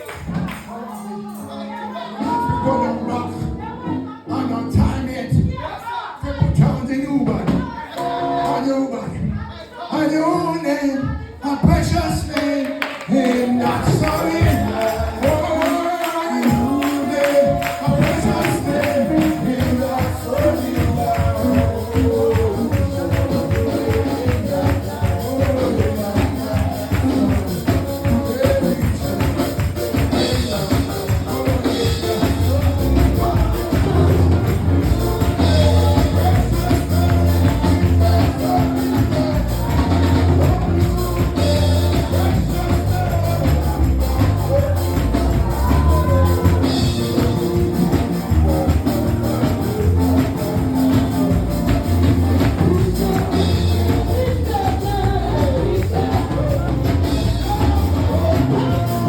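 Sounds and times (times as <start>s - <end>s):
gospel music: 0.0s - 59.0s
voices singing: 0.0s - 59.0s
tambourine shaken and struck: 13.1s - 59.0s
drum beat: 13.2s - 59.0s.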